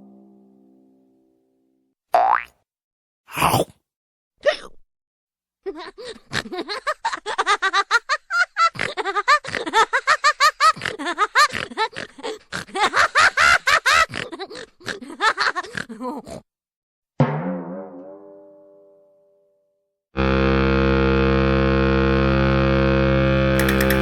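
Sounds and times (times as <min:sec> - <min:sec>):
distorted guitar chord: 0:00.0 - 0:01.4, 0:20.2 - 0:24.0
cartoon-style giggling: 0:05.7 - 0:16.4.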